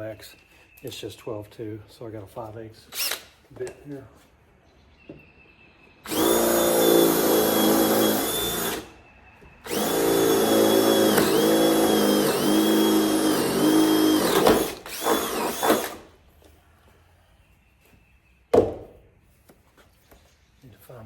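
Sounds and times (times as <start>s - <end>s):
power drill whining: 2.9s - 3.3s, 6.0s - 9.0s, 9.6s - 16.1s.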